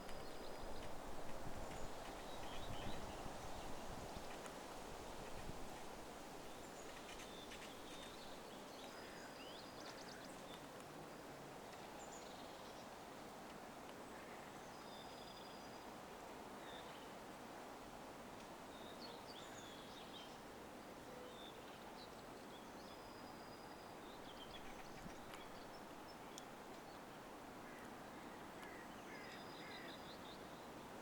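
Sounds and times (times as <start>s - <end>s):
faint bird calls: 6.8s - 10.6s, 27.6s - 30.5s.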